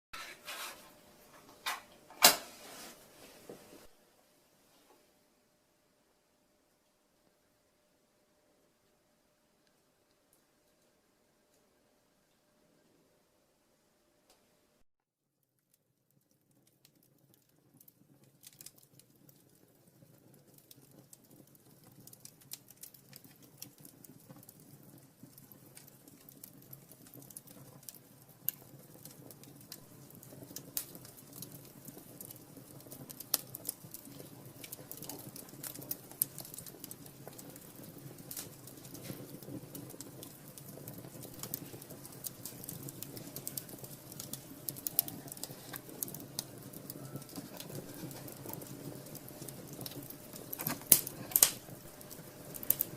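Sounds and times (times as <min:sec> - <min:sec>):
wood fire crackling: 0:00.1 - 0:07.6, 0:09.6 - 0:12.4, 0:15.4 - 0:52.9.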